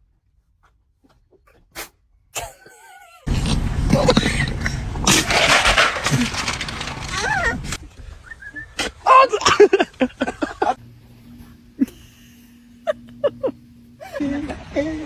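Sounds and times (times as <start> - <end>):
cockatoo whistle-like call: 8.2 - 8.8.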